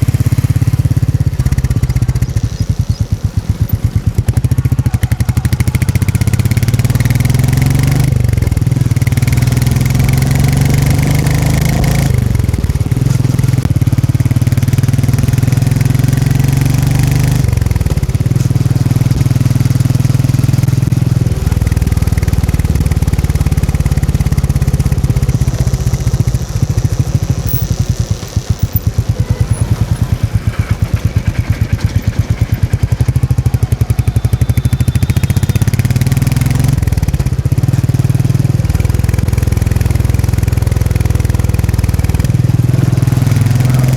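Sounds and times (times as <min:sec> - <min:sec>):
motorcycle engine thumping: 0:00.0 - 0:43.9.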